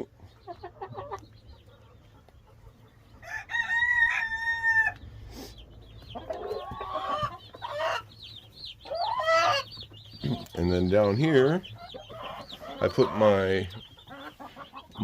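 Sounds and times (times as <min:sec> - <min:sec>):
chicks peeping: 0:00.0 - 0:15.0
hens clucking and squawking: 0:00.0 - 0:15.0
rooster crowing: 0:03.2 - 0:05.0.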